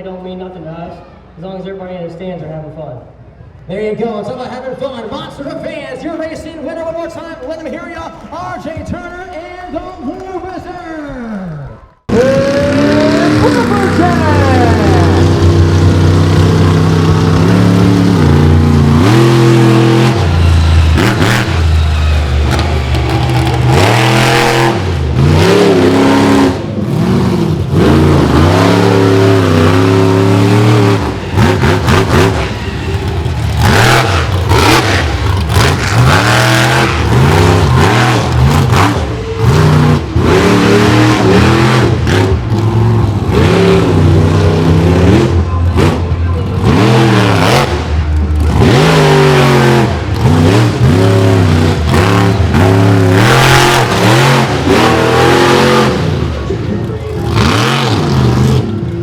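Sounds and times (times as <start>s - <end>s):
monster truck engine revving: 12.0s - 59.0s.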